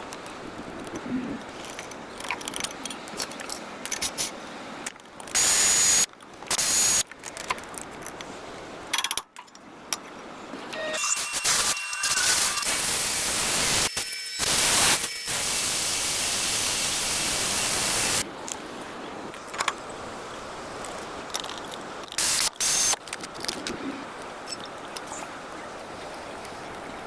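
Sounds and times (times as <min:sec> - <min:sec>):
pressurised spray hissing: 0:11.3 - 0:18.2.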